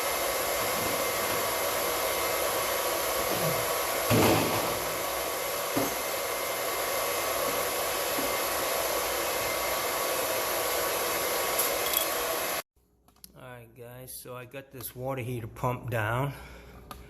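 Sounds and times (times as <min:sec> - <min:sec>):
electric pump running: 0:00.0 - 0:12.6.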